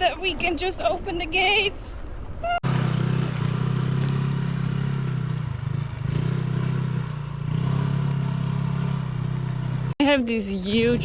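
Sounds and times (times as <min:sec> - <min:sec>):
small motorbike engine running: 0:02.6 - 0:10.0.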